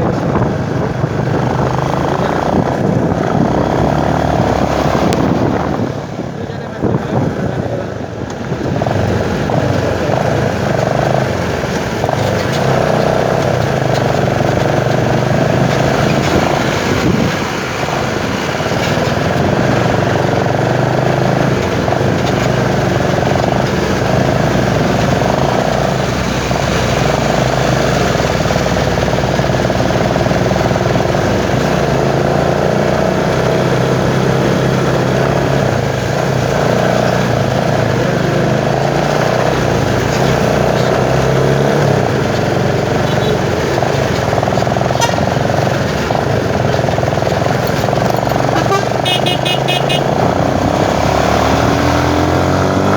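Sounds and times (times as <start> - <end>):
motorcycle engine running: 0.0 - 52.9
wind noise: 0.0 - 52.9.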